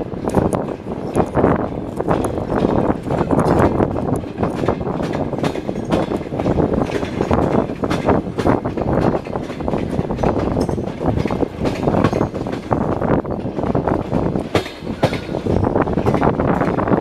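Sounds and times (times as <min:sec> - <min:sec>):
train wheels clattering on track: 0:00.0 - 0:17.0
carriage rattle: 0:00.3 - 0:13.7.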